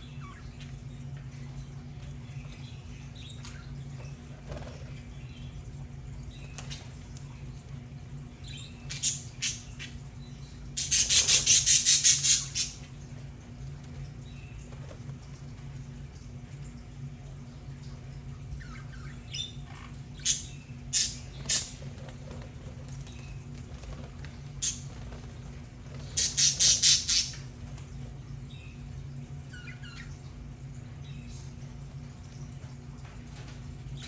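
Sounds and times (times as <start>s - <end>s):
budgies chirping: 8.4s - 12.8s, 26.0s - 27.5s
budgies squawking: 26.2s - 27.4s.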